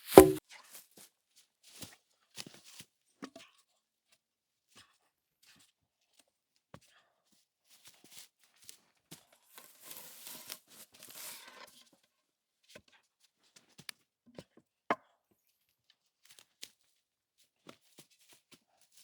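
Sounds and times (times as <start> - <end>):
wood knocks and snaps: 0.1 - 0.4
branches rustling and scraping: 9.5 - 11.7.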